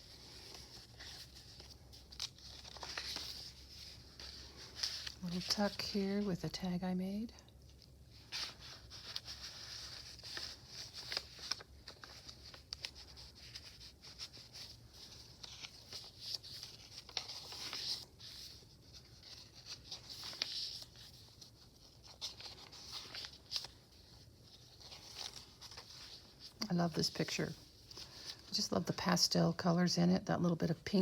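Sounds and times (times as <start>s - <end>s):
paper pages rustling: 0.0s - 6.4s, 7.7s - 29.2s.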